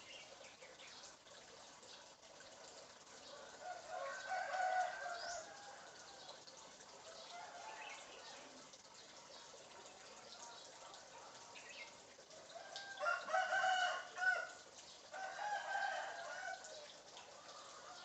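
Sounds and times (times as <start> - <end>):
rooster crowing: 3.6 - 6.0, 12.5 - 16.8
faint chirps and clucks: 16.1 - 18.0.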